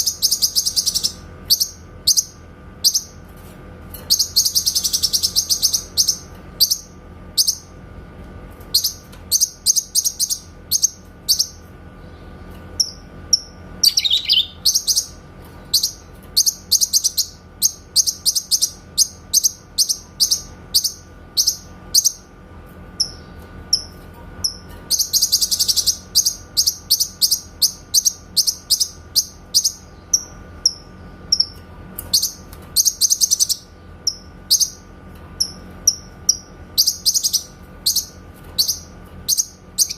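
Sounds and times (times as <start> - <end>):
faint steady hum: 0.0 - 39.9
bird singing rapid high notes: 12.8 - 15.2.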